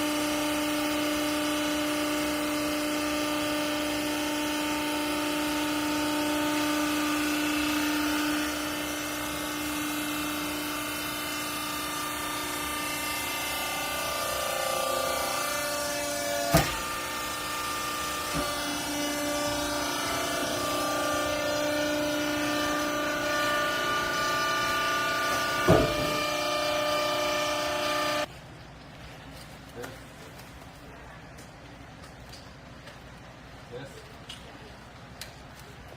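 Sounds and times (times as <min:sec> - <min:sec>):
baler machine hum: 0:00.0 - 0:28.3
sharp loud bang: 0:25.6 - 0:26.3.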